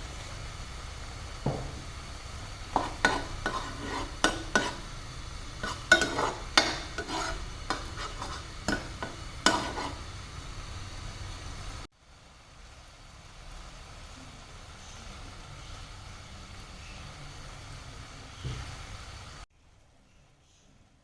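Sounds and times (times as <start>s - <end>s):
spoon clinking and scraping container: 2.8s - 4.9s, 5.6s - 10.0s.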